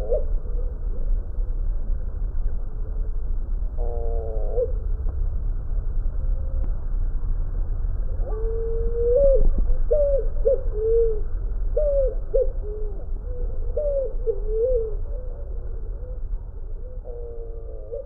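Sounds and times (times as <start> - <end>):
steady low rumble: 0.0 - 18.0
bird calling with low whistles: 8.2 - 18.0.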